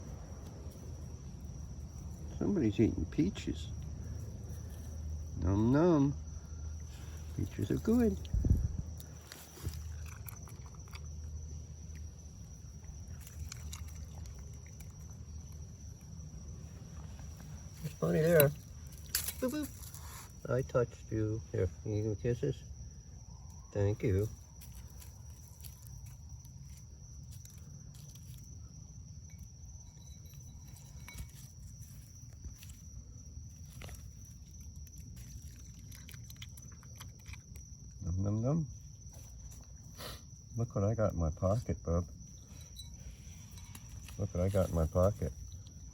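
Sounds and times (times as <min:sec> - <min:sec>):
night insects chorus: 0:00.0 - 0:45.9
steady low hum: 0:00.0 - 0:45.9
animal chewing and smacking: 0:09.0 - 0:16.2, 0:33.6 - 0:37.9.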